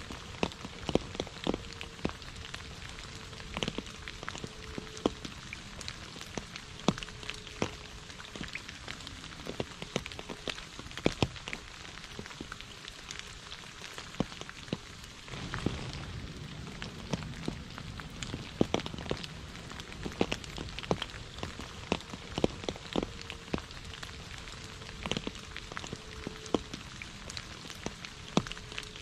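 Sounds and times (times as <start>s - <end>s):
rain falling on puddles: 0.0s - 29.0s
low rumble: 15.3s - 27.5s.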